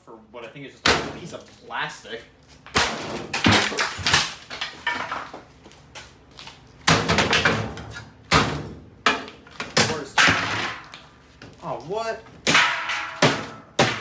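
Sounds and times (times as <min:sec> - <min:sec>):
crowbar striking plastic: 0:02.7 - 0:05.3, 0:06.9 - 0:11.1, 0:12.4 - 0:14.0.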